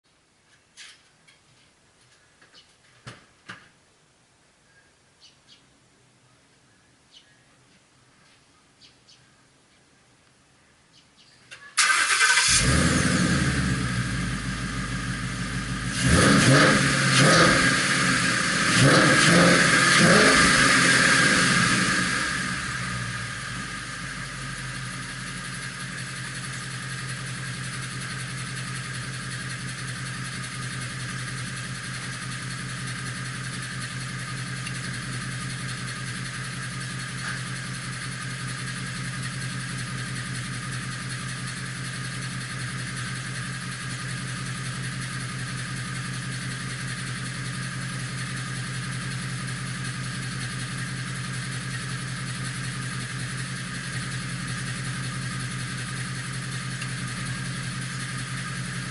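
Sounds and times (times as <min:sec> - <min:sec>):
car engine idling: 0:11.8 - 0:58.9.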